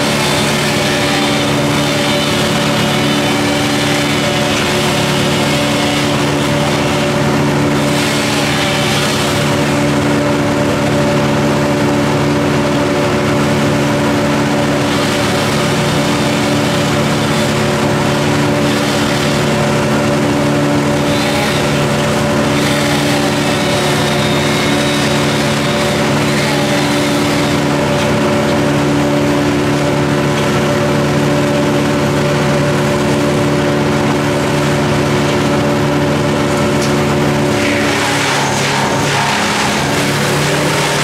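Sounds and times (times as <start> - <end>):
engine running steadily: 0.0 - 41.0.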